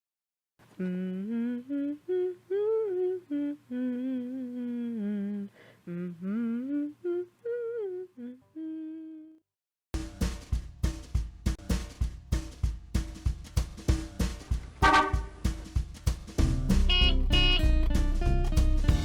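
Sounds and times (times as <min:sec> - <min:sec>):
person humming: 0:00.8 - 0:09.4
drum beat: 0:10.0 - 0:19.0.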